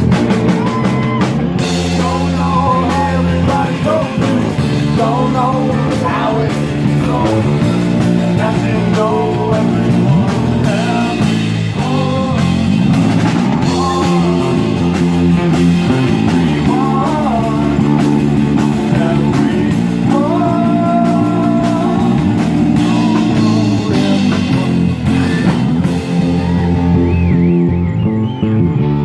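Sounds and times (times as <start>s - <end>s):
bass guitar: 0.0s - 29.0s
drums: 0.0s - 29.0s
electric guitar: 0.0s - 29.0s
person singing long notes: 1.8s - 12.8s, 13.6s - 15.4s, 16.3s - 24.8s.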